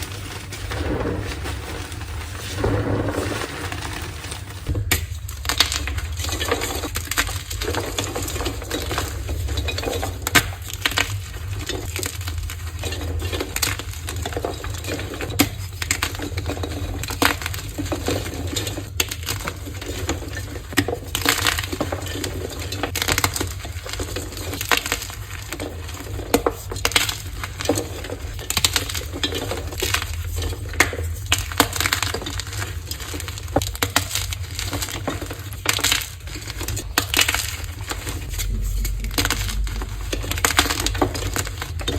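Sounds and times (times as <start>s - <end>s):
chalk blocks crunching: 0.0s - 4.8s
steady low hum: 36.2s - 41.9s.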